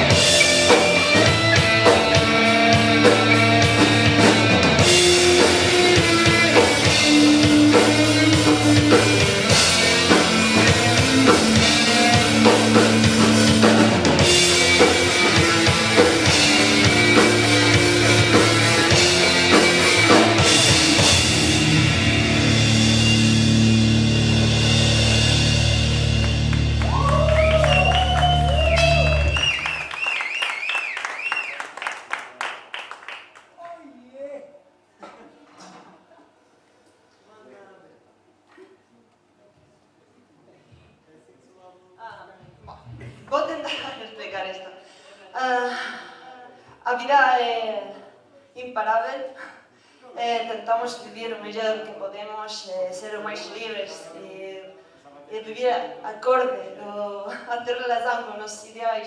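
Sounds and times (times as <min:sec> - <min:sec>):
amplified guitars and bass: 0:00.0 - 0:29.9
drum kit: 0:00.0 - 0:30.0.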